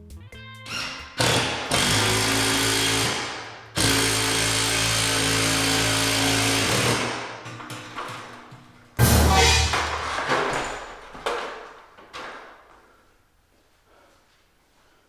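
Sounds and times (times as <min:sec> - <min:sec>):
power drill whining: 0:00.7 - 0:07.3.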